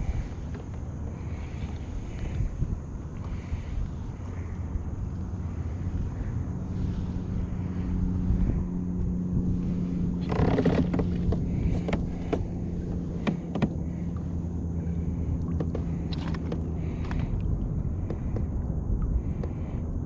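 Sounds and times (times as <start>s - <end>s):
boat motor humming: 0.0s - 20.0s
sharp knocks and clicks: 13.2s - 13.9s, 15.5s - 17.2s
splash: 15.0s - 17.5s.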